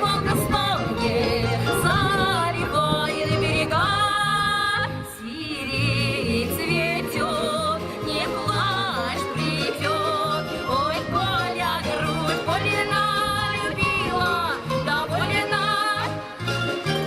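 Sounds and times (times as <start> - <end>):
woman singing: 0.0 - 16.4
instrumental accompaniment: 0.0 - 17.0.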